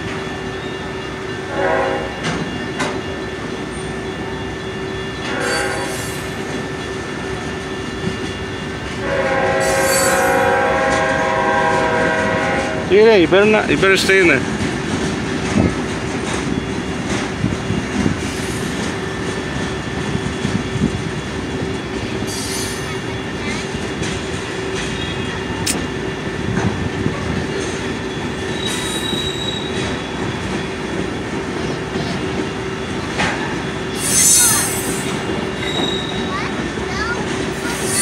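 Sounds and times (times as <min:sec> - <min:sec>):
high wheel squeals: 0:00.0 - 0:08.9, 0:09.6 - 0:10.7, 0:21.5 - 0:24.0, 0:27.6 - 0:31.3, 0:32.5 - 0:38.0
freight train rumble and clatter: 0:00.0 - 0:38.0.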